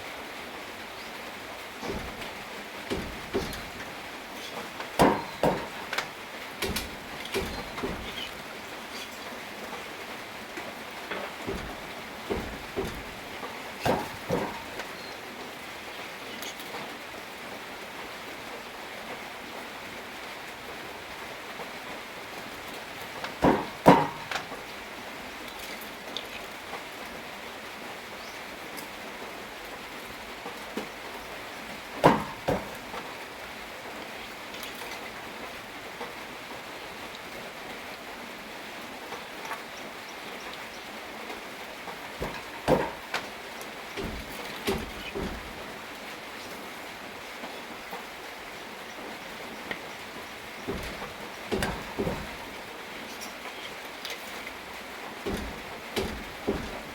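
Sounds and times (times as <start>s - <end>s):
steady rain falling: 0.0s - 56.9s
loom beater knocks: 1.8s - 8.6s, 10.6s - 15.0s, 23.0s - 24.6s, 32.0s - 33.1s, 42.1s - 46.0s, 50.1s - 52.6s, 55.2s - 56.9s.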